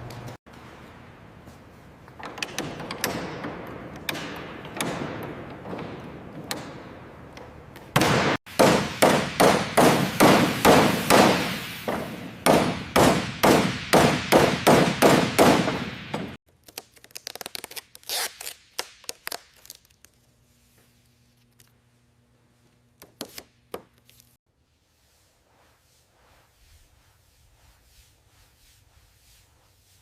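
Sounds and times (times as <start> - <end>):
hammer blows ringing: 8.0 - 16.4.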